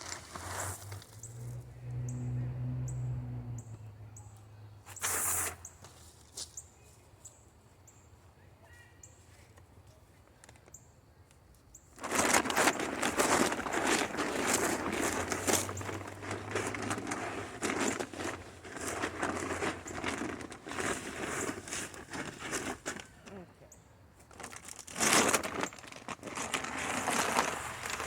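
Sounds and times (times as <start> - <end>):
loud dry rustling: 0.0 - 1.6, 12.0 - 23.4, 24.3 - 28.0
low hum: 1.1 - 4.6.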